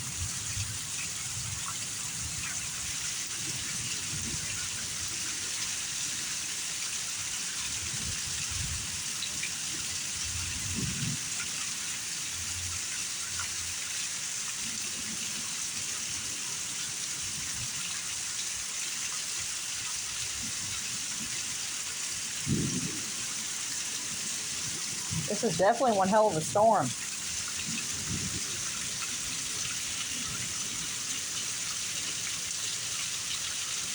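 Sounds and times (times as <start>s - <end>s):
heavy rain pouring: 19.4s - 33.9s.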